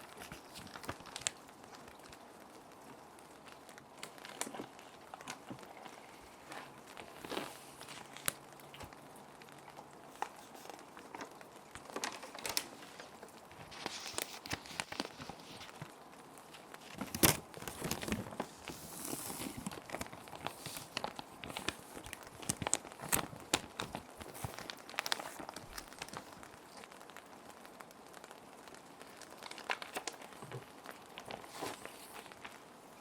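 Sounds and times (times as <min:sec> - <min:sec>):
plastic sheet protectors crinkling: 0:00.0 - 0:33.0.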